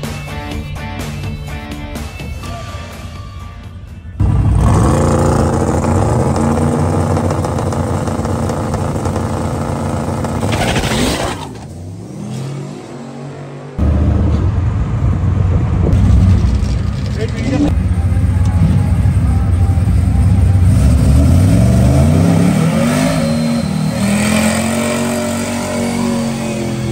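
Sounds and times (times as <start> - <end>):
vehicle engine revving high: 4.2 - 10.9, 18.5 - 26.9.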